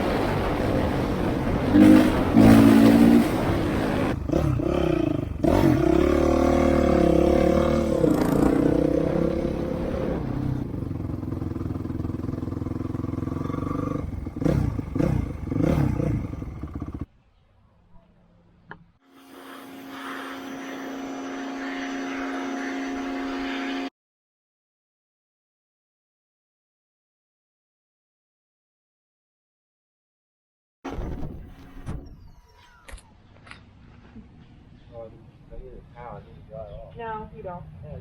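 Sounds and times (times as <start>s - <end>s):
engine revving: 0.0s - 17.1s, 19.6s - 23.9s.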